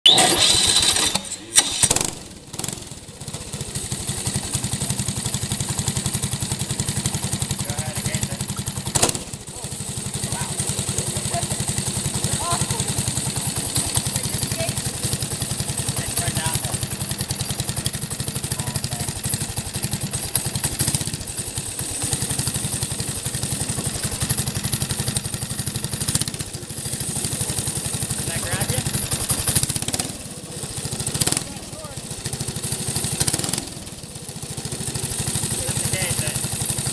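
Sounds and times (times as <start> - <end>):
small engine firing: 0.0 - 36.9.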